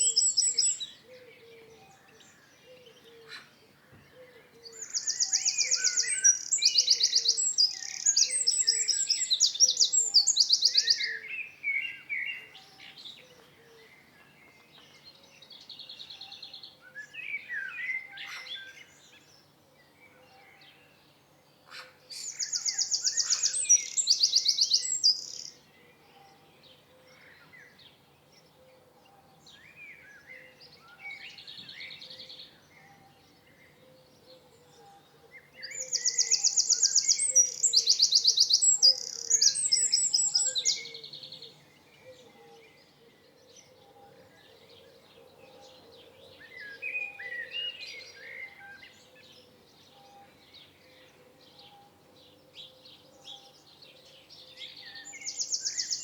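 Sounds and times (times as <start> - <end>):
songbird singing high trills: 0.0 - 3.5, 4.6 - 19.5, 21.7 - 26.4, 34.8 - 44.6, 46.4 - 52.0, 52.6 - 56.0
soft bird chirps: 21.6 - 28.5, 29.5 - 44.7, 52.7 - 56.0.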